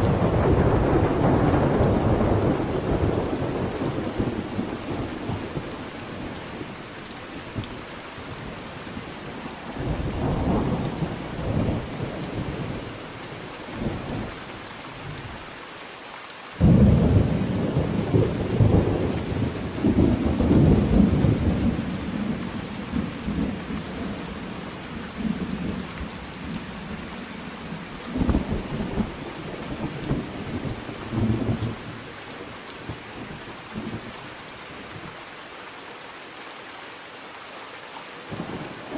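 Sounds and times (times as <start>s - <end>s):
thunder rumbling: 0.0s - 6.8s, 9.7s - 14.3s, 16.6s - 26.0s, 27.7s - 32.0s
steady rain falling: 0.0s - 38.9s.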